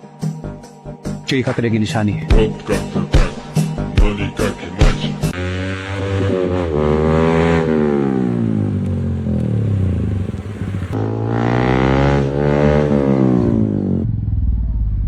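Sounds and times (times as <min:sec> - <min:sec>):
motorcycle engine revving: 0:04.9 - 0:15.0.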